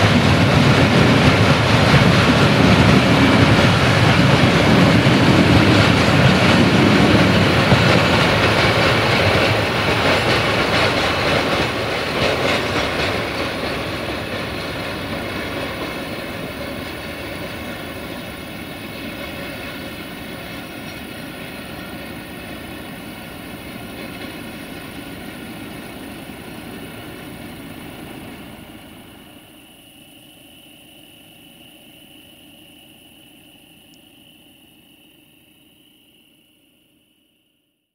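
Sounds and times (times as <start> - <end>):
freight train wagons rolling past: 0.0 - 37.0.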